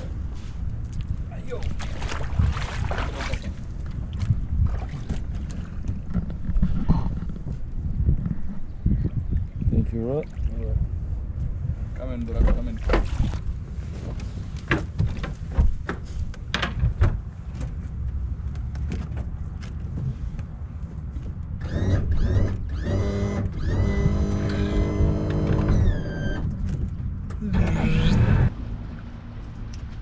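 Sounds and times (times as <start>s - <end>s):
wind rumble on microphone: 0.0s - 22.7s
boat motor whining: 21.6s - 26.6s.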